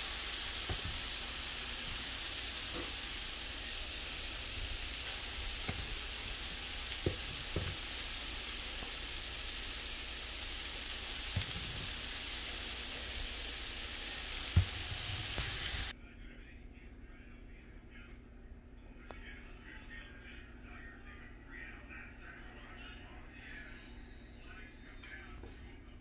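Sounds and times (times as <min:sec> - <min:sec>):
meat sizzling on a griddle: 0:00.0 - 0:15.9.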